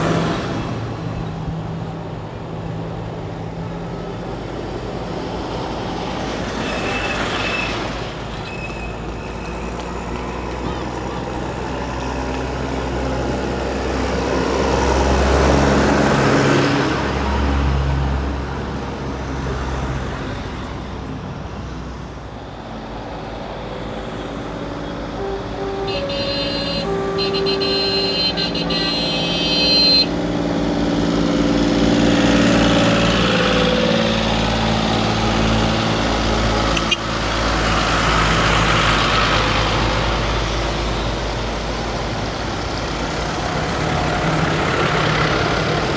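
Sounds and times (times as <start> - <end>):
tractors passing by: 0.0 - 45.9
horn sounding: 25.1 - 30.2, 36.5 - 37.4.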